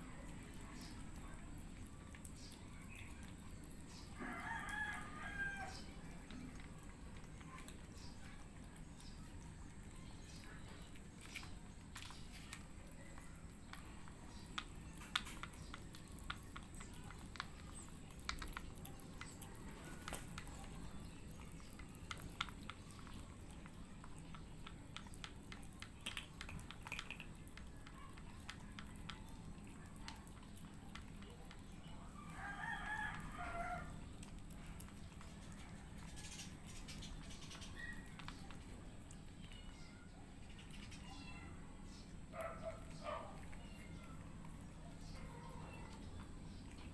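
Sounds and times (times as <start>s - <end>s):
cats crunching kibble: 0.0s - 46.9s
rooster crowing: 4.2s - 5.9s, 32.3s - 34.0s.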